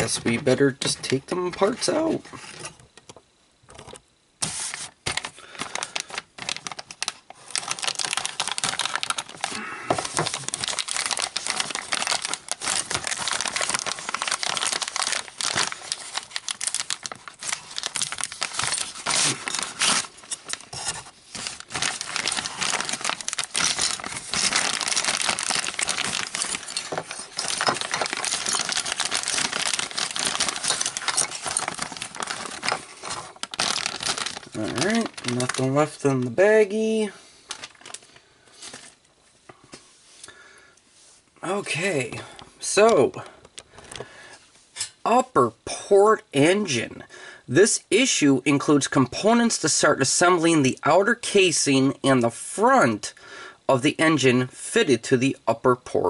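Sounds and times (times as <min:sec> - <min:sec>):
plastic bags crinkling: 0:05.0 - 0:39.1.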